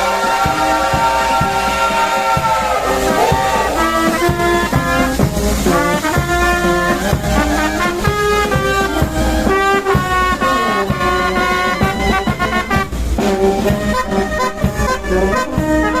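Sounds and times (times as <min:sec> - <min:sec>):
brass band playing: 0:00.0 - 0:16.0.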